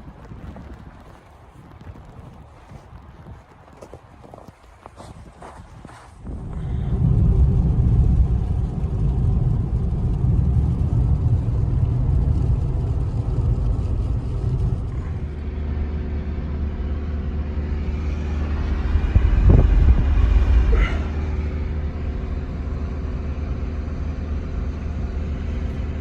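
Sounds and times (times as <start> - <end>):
loud low rumble: 6.2 - 26.0.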